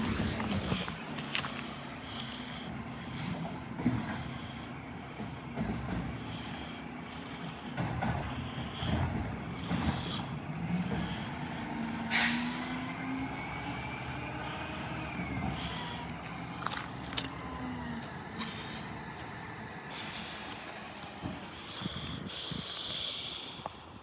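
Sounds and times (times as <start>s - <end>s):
garbage truck engine running: 0.0s - 22.6s
air brakes hissing: 1.7s - 3.6s, 11.2s - 16.3s.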